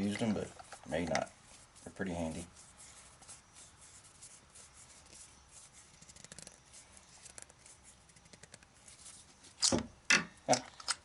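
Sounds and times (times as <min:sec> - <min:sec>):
hands handling metal collet: 0:00.0 - 0:01.6.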